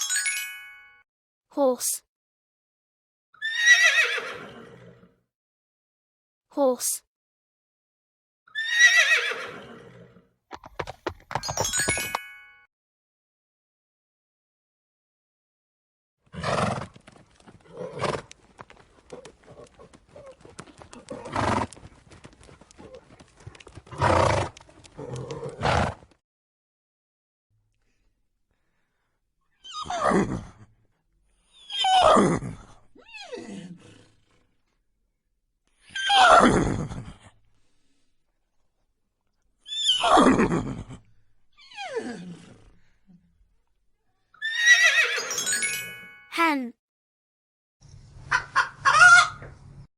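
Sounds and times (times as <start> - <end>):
horse whinnying: 3.4 - 4.9, 8.6 - 10.1, 44.4 - 45.3
horse hooves clopping: 10.5 - 12.3, 16.6 - 26.2.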